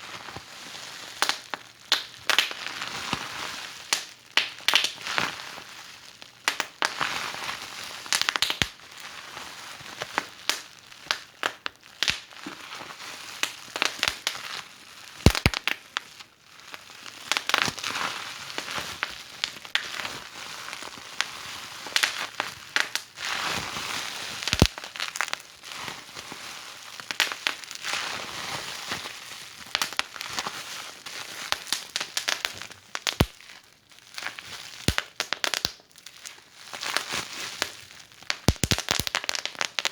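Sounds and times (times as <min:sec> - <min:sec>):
wood fire crackling and popping: 0:01.2 - 0:02.5, 0:03.9 - 0:05.0, 0:08.1 - 0:08.7, 0:10.5 - 0:12.3, 0:15.2 - 0:15.8, 0:24.4 - 0:25.4, 0:27.1 - 0:27.5, 0:29.7 - 0:30.1, 0:31.5 - 0:33.4, 0:34.8 - 0:36.4, 0:37.6 - 0:39.9
soft fire hiss: 0:15.3 - 0:15.6.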